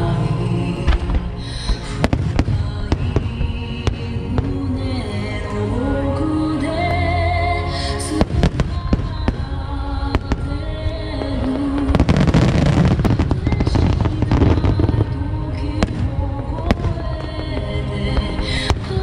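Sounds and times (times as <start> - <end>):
music: 0.0 - 19.0
fireworks crackle: 0.8 - 4.8, 8.2 - 19.0
fireworks bursting: 0.8 - 5.2, 8.1 - 19.0.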